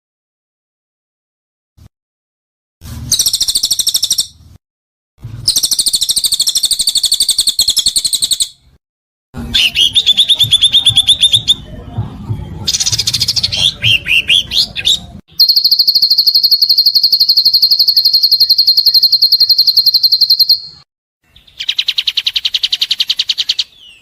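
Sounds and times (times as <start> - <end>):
songbird harsh trills: 12.7 - 24.0.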